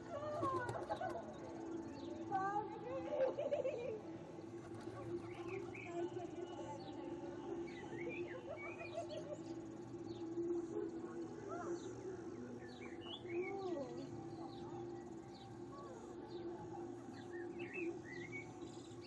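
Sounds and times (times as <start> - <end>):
steady low hum: 0.0 - 19.0
birds chirping and calling: 4.3 - 19.0.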